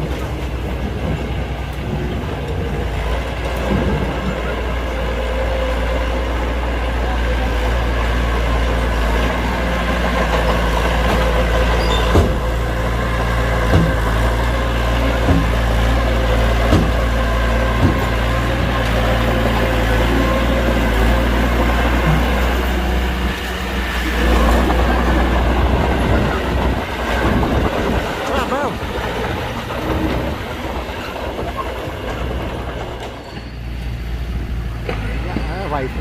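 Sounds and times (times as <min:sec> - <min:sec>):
heavy diesel engine running: 0:00.0 - 0:36.0
sharp knocks: 0:12.0 - 0:12.6, 0:13.6 - 0:14.3, 0:15.2 - 0:15.8, 0:16.6 - 0:17.2, 0:17.8 - 0:18.7.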